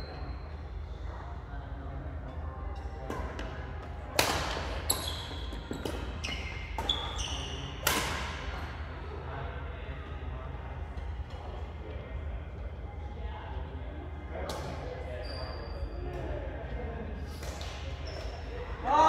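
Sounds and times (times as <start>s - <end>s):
shoes squeaking on court floor: 4.8s - 8.2s, 17.4s - 18.7s
racket hitting shuttlecock: 7.8s - 8.4s.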